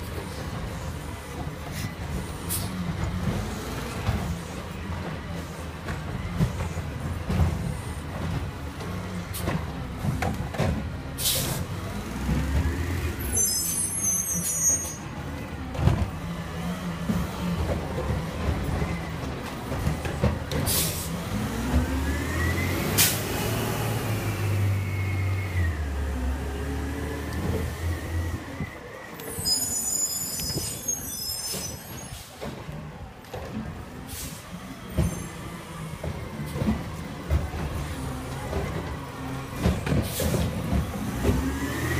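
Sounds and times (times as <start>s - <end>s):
high squeal: 13.2s - 15.1s, 29.2s - 32.3s
garbage truck engine hum: 32.4s - 41.9s.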